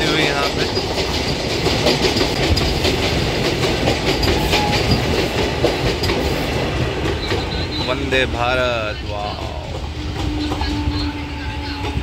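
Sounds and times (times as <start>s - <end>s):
wheels clacking over track: 0.0s - 8.6s
train rumble: 0.0s - 12.0s.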